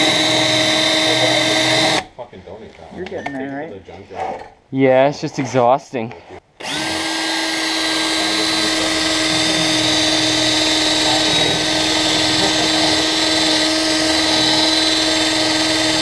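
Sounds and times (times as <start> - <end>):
power drill whining: 0.0 - 2.0, 6.6 - 16.0.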